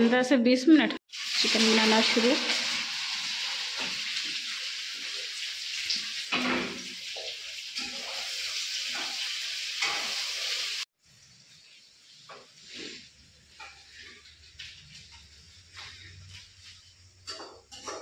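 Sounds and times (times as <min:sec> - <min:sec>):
food sizzling in hot oil: 0:01.0 - 0:18.0
metal spatula scraping a pan: 0:07.2 - 0:10.8, 0:11.6 - 0:18.0.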